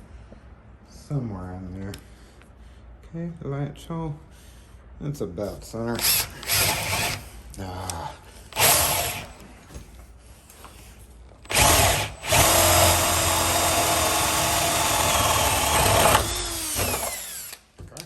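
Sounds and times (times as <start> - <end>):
power drill boring into wood: 6.0 - 7.3, 8.5 - 9.4, 11.5 - 17.7.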